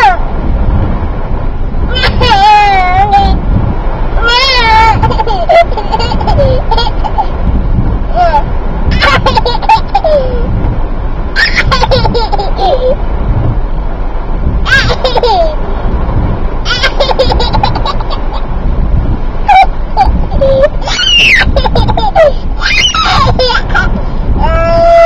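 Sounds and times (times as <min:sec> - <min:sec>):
low car cabin rumble: 0:00.0 - 0:25.0
baby giggling: 0:04.8 - 0:07.3, 0:09.0 - 0:10.4, 0:11.4 - 0:13.0, 0:14.7 - 0:15.6, 0:16.7 - 0:18.4, 0:19.5 - 0:24.0.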